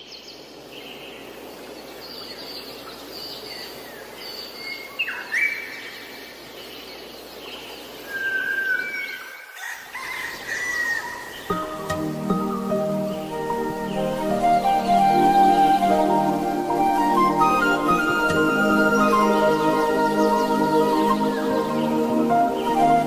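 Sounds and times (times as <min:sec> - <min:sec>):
steady outdoor hiss: 0:00.0 - 0:23.0
birds chirping and whistling: 0:08.0 - 0:09.5, 0:10.5 - 0:23.0
music: 0:11.5 - 0:23.0.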